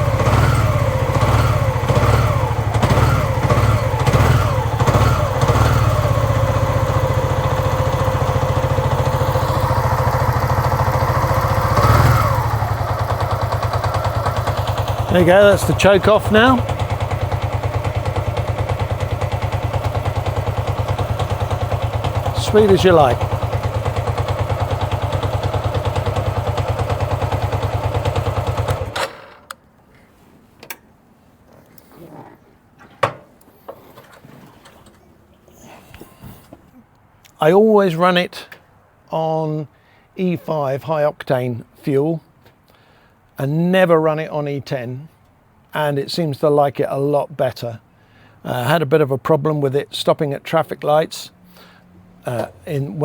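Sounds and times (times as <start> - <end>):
motorcycle engine idling fast: 0.0 - 29.3
engine revving blips: 0.0 - 29.6.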